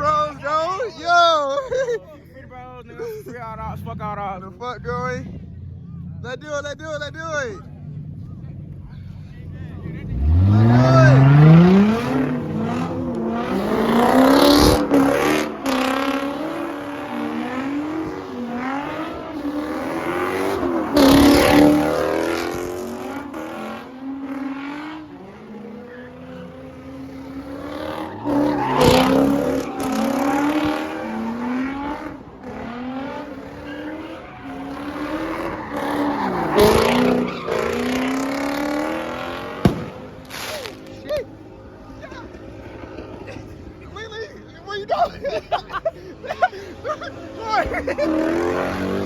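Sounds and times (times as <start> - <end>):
car engine revving: 3.5 - 44.2, 45.3 - 49.0
tyre squeal: 25.5 - 32.2, 33.2 - 38.8.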